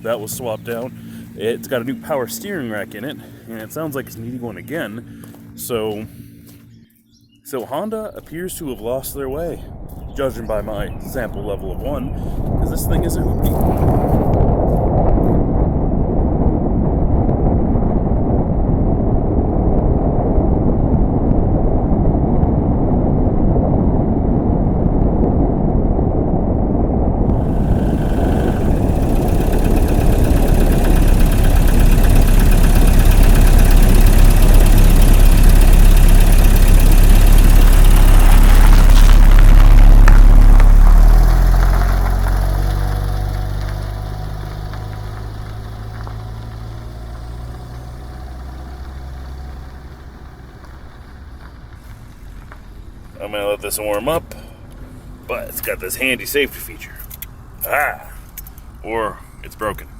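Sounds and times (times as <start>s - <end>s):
vehicle engine running: 0.0s - 22.9s, 27.3s - 57.8s.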